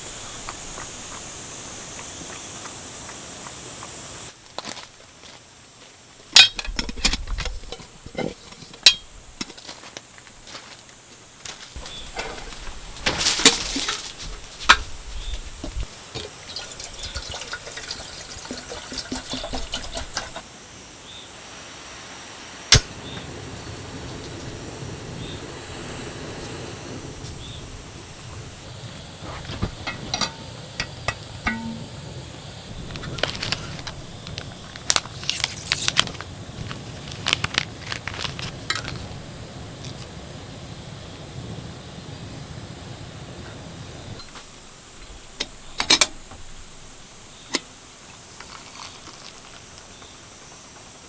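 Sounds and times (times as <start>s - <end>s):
liquid being poured: 15.8s - 20.4s, 48.1s - 49.9s.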